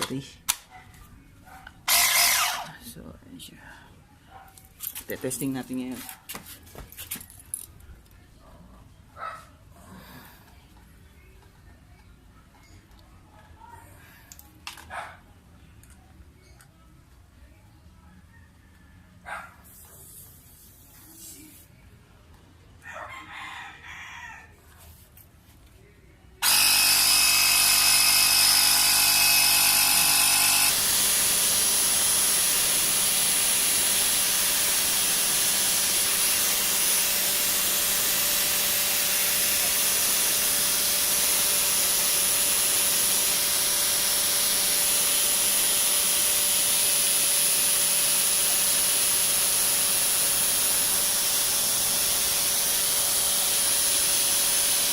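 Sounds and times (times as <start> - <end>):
air compressor running: 1.9 - 2.8, 26.4 - 54.9.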